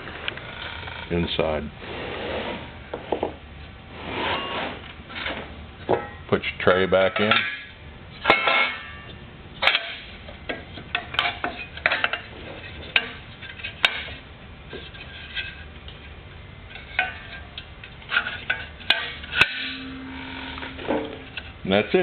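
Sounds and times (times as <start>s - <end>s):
metal clinks and knocks: 7.1s - 14.2s.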